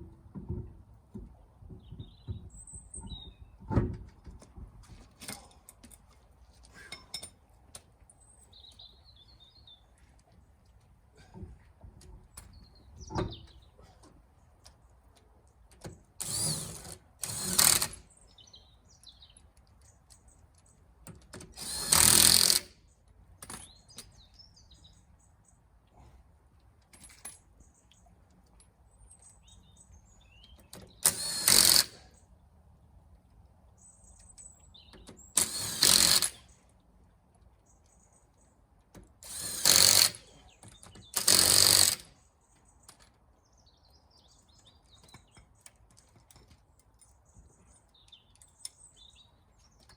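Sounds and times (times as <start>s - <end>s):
faint birdsong: 0.0s - 49.9s
power tool spinning bolts: 16.2s - 18.1s, 21.5s - 22.8s, 30.8s - 32.1s, 35.2s - 36.5s, 39.2s - 42.1s.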